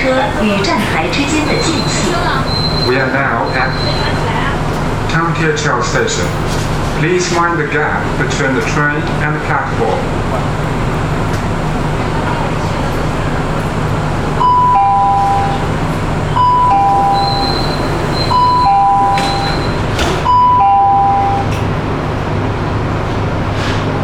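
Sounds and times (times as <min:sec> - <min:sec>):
train humming at platform: 0:00.0 - 0:24.0
two-note door chime: 0:14.5 - 0:15.6, 0:18.4 - 0:19.6, 0:20.3 - 0:21.5.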